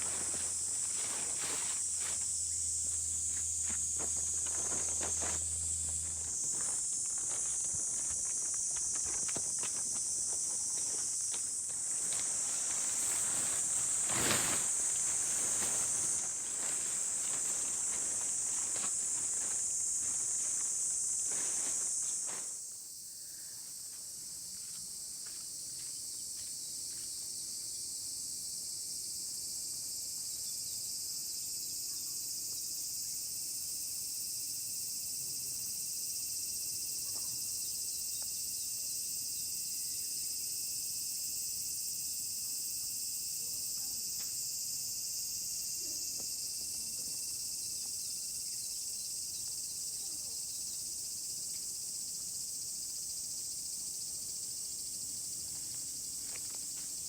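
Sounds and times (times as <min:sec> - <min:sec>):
knocks and rustles: 0:00.0 - 0:22.5
insects chorus: 0:00.0 - 0:57.0.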